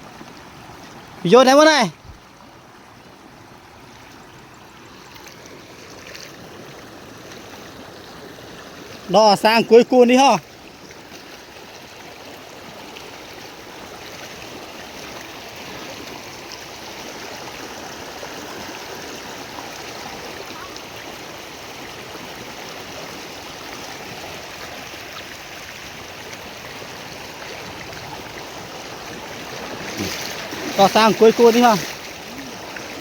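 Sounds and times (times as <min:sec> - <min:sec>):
rushing flowing water: 0:00.0 - 0:33.0.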